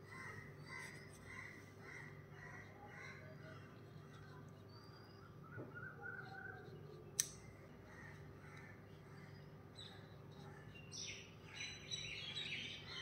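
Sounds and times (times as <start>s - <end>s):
birds calling faintly: 0.0s - 13.0s
sharp click: 7.1s - 7.5s.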